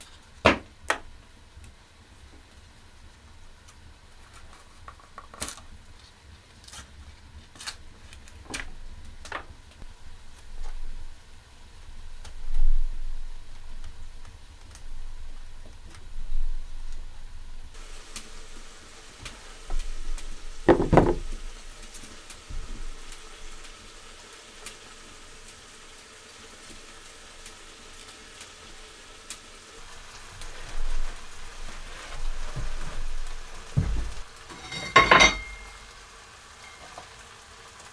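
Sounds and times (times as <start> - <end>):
food sizzling in a pan: 17.6 - 37.9
utensil knocking on pan: 17.8 - 21.6, 33.7 - 35.9.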